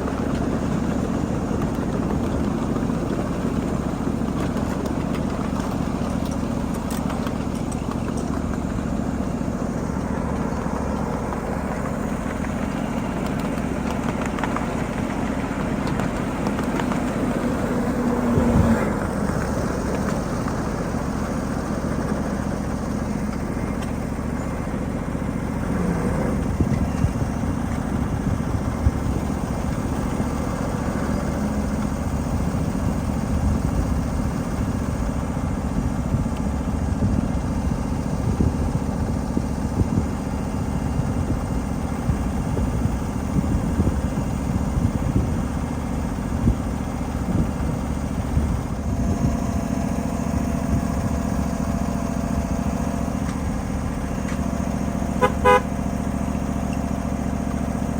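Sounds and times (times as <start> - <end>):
wheels clattering over rails: 0.0 - 37.5
locomotive drone: 0.0 - 57.9.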